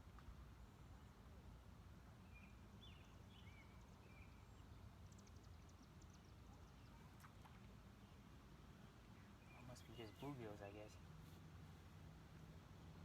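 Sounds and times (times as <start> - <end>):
soft bird chirps: 2.2 - 7.4, 9.0 - 10.9.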